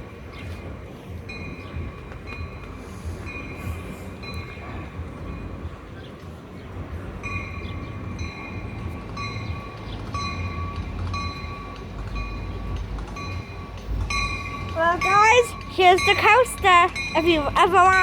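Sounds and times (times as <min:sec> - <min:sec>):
bell ringing: 0:07.2 - 0:18.0.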